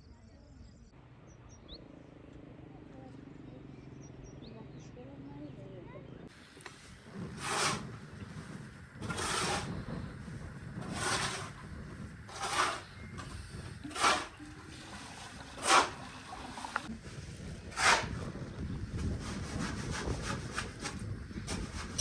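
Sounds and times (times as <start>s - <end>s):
hand saw cutting wood: 6.6s - 10.0s, 10.8s - 16.9s, 17.7s - 18.2s.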